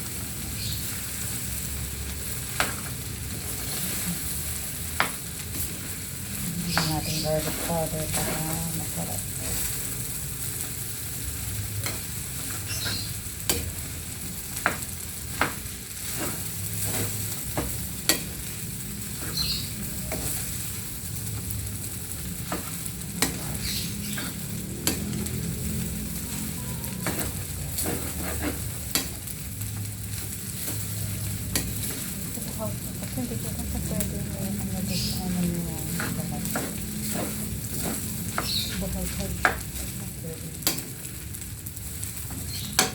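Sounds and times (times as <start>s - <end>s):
food sizzling in a pan: 0.0s - 42.9s
spatula scraping a pan: 2.2s - 10.0s, 11.8s - 29.5s, 30.1s - 40.0s.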